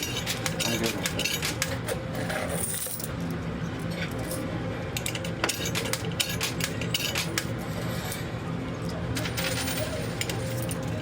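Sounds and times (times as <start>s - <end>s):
coins clinking in coin pusher: 0.0s - 3.2s, 5.0s - 8.3s, 9.1s - 11.0s.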